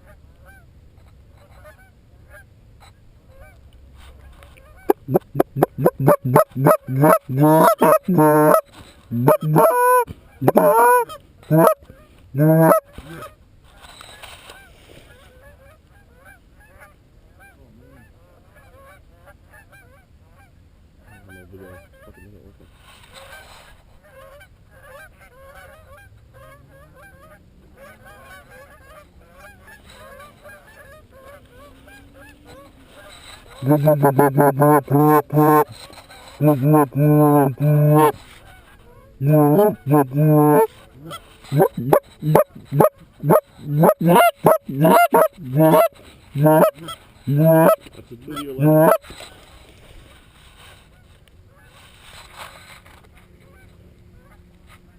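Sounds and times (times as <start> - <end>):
goose honking: 4.8 - 11.8, 12.4 - 12.9, 33.5 - 35.8, 36.4 - 38.2, 39.2 - 49.2
distant flock honking: 4.9 - 11.8, 12.4 - 12.8, 33.6 - 38.2, 39.2 - 49.3.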